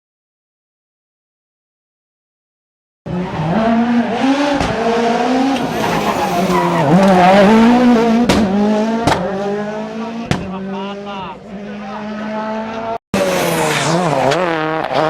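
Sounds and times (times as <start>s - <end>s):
rally car engine revving: 3.1s - 15.0s.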